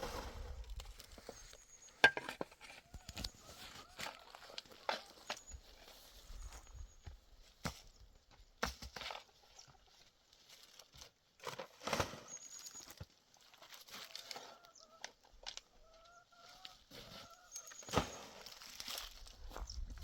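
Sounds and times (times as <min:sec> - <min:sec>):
chickens clucking: 0:02.0 - 0:05.4, 0:14.1 - 0:17.9.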